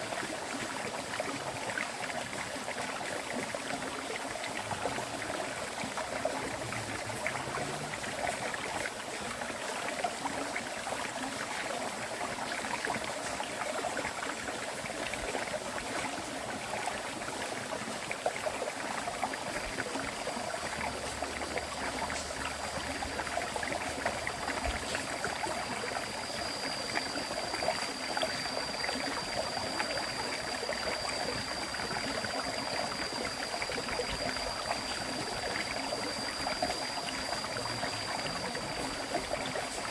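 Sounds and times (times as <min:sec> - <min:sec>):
river stream flowing: 0:00.0 - 0:39.9
thin high tone: 0:20.8 - 0:39.9.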